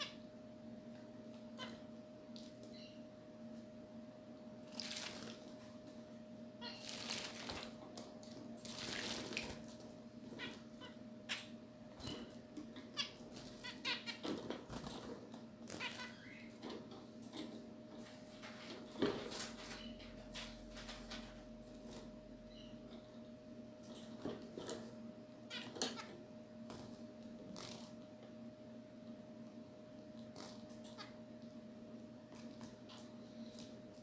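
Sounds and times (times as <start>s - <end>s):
steady low hum: 0.0s - 34.0s
small birds chirping: 15.7s - 16.6s.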